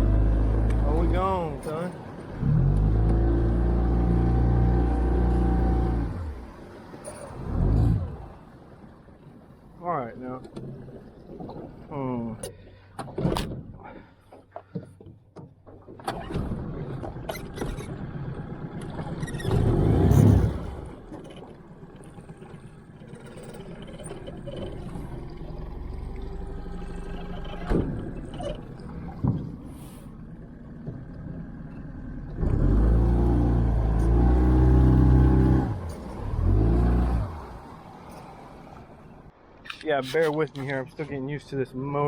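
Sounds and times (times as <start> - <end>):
outboard motor droning: 0.0 - 9.7, 15.8 - 39.4.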